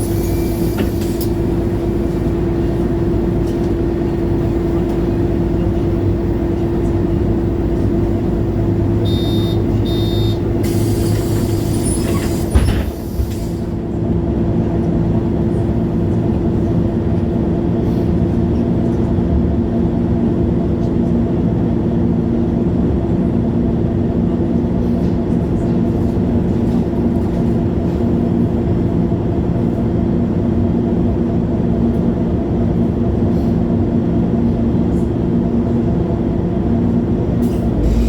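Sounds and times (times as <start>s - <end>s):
bus drivetrain whine: 0.0s - 38.0s
electronic beeping: 9.0s - 10.4s.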